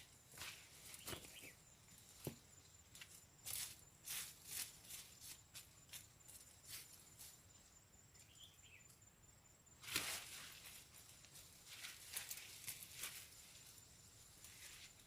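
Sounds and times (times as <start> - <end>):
scraping rustling strokes: 9.8 - 13.8.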